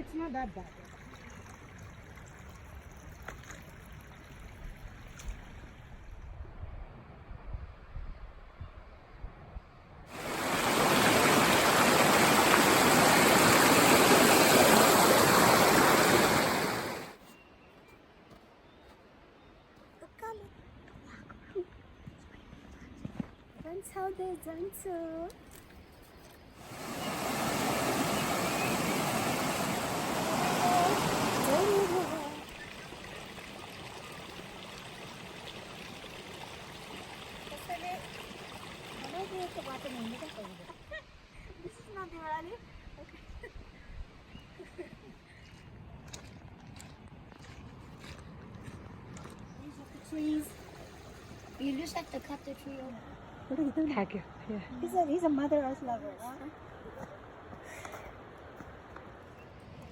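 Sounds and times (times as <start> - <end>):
rushing water: 0.0 - 5.9, 10.1 - 17.2, 26.6 - 41.2, 49.6 - 54.0.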